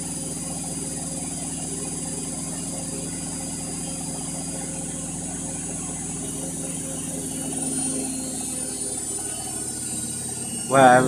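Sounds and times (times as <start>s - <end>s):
washing machine spinning with whine: 0.0s - 11.0s.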